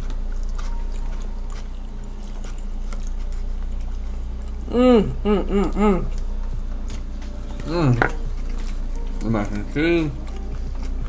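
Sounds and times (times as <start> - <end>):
faint chewing and clicks: 0.0 - 11.0
low hum: 0.0 - 11.0
person making short vocal sounds: 7.7 - 8.3.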